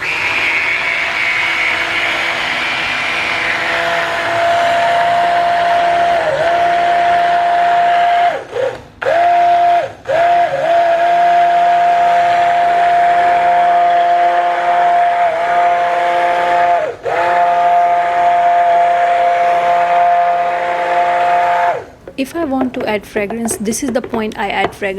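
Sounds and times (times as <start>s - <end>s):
stick blender whining: 21.9s - 24.9s.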